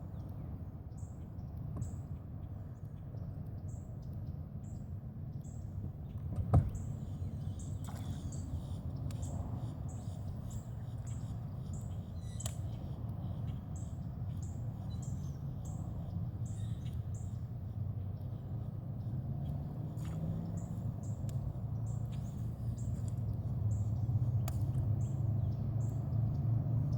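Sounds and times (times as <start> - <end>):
steady low rumble: 0.0 - 26.9.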